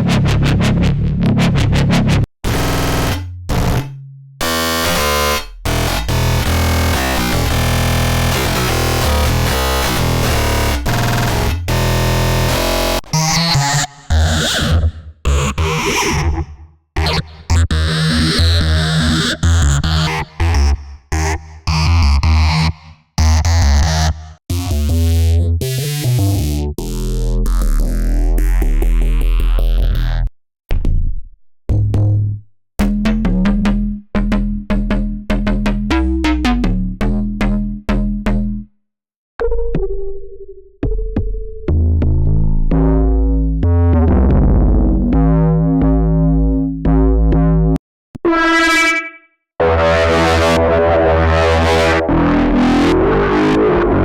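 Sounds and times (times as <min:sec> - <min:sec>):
synthesizer bass stabs: 0:00.0 - 0:16.4, 0:32.8 - 0:38.6, 0:42.2 - 0:54.0
deep bass with sweeping filter: 0:00.0 - 0:38.7, 0:41.2 - 0:54.0
synthesizer held notes: 0:48.2 - 0:54.0.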